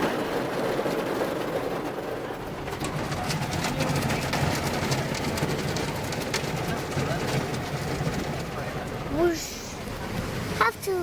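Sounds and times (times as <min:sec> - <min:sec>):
rapid patter against glass: 0:02.0 - 0:09.1.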